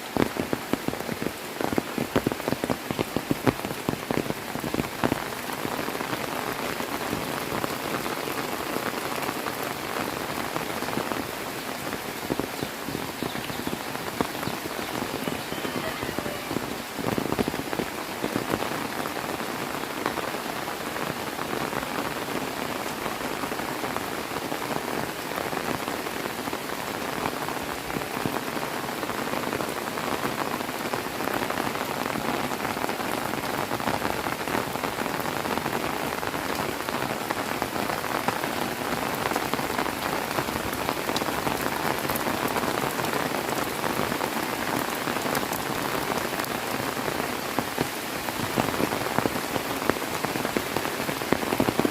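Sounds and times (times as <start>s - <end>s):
heavy rain falling: 0.0s - 51.9s.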